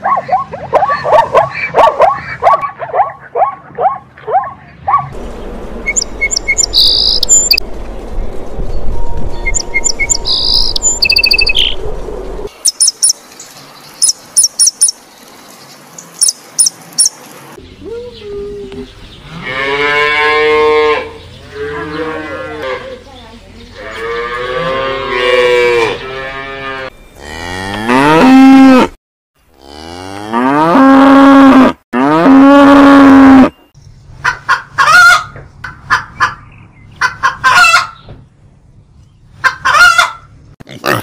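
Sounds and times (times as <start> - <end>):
cows mooing: 19.3 - 23.0, 23.8 - 29.0, 29.6 - 33.5
hens clucking: 34.2 - 38.0, 39.4 - 40.3.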